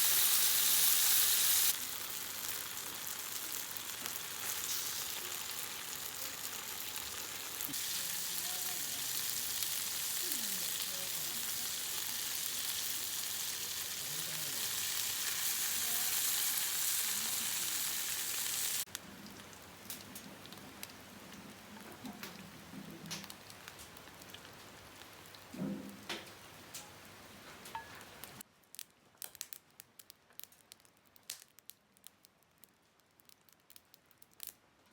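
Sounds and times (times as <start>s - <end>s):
food sizzling in a pan: 0.0s - 22.6s
light rain: 1.6s - 34.9s.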